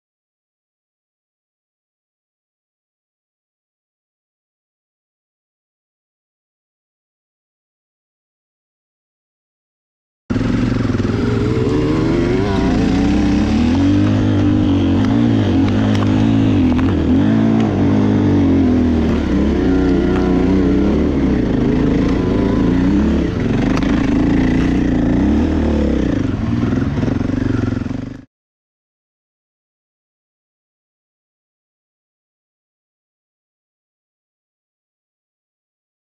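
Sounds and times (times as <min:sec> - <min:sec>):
dirt bike engine revving: 0:10.3 - 0:28.3.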